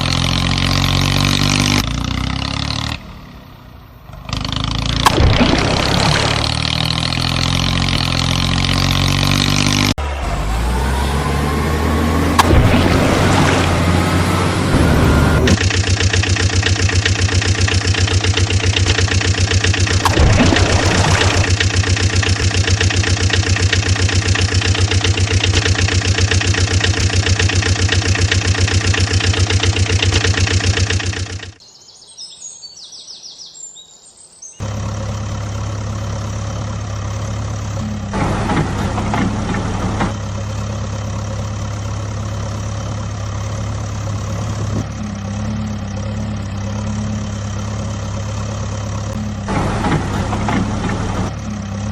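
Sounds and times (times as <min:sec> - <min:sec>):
diesel engine idling: 0:10.0 - 0:31.6, 0:34.6 - 0:51.9
engine starting and idling: 0:10.1 - 0:31.6, 0:34.6 - 0:46.0, 0:47.2 - 0:51.9.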